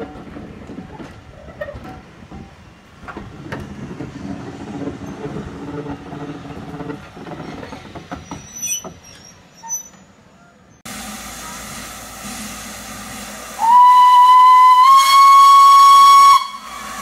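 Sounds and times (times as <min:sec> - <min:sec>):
wheels clicking on track: 0:00.0 - 0:10.3
train coaches rumbling past: 0:00.0 - 0:17.0.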